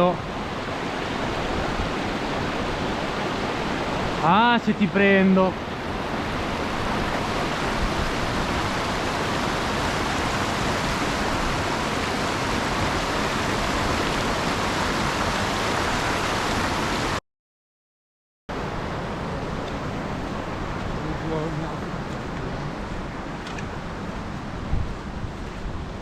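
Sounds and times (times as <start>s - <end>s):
water rushing over rocks: 0.0s - 17.2s, 18.5s - 25.0s.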